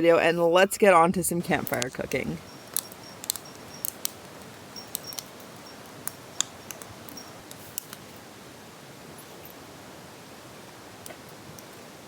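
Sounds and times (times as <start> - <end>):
campfire crackling and popping: 1.4 - 8.3, 10.4 - 12.0.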